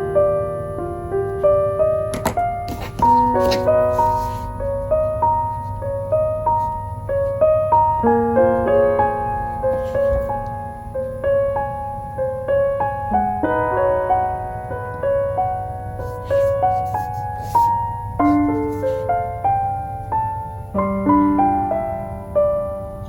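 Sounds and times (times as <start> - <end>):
soft piano music: 0.0 - 23.0.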